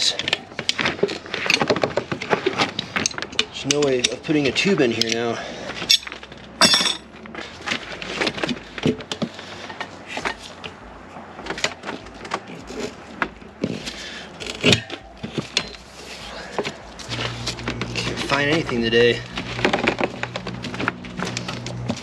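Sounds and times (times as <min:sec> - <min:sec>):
hand tools clicking and knocking: 0:00.0 - 0:22.0.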